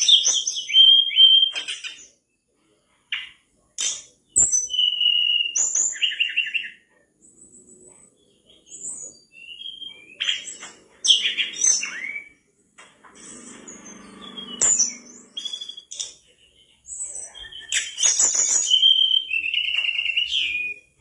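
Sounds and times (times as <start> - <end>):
flycatcher singing: 8.2 - 12.4, 13.1 - 21.0.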